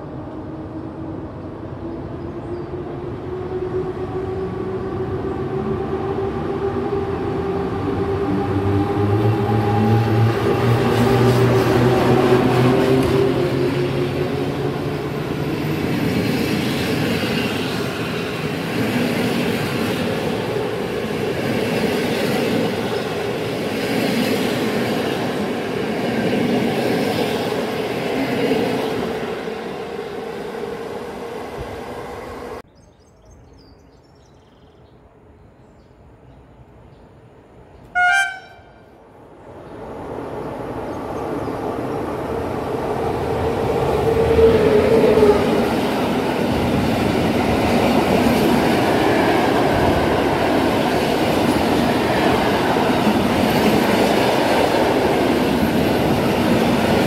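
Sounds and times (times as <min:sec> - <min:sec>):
train wheels rumbling on rail: 0:00.0 - 0:32.6, 0:39.4 - 0:57.0
approaching locomotive rumble: 0:00.0 - 0:32.7, 0:37.5 - 0:57.0
train horn blast: 0:37.9 - 0:38.9.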